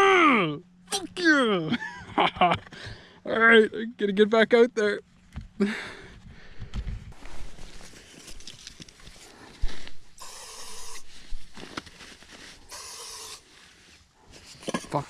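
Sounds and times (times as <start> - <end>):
handling noises: 6.5 - 10.2, 11.0 - 12.7
short hiss: 10.2 - 11.4, 12.6 - 13.5.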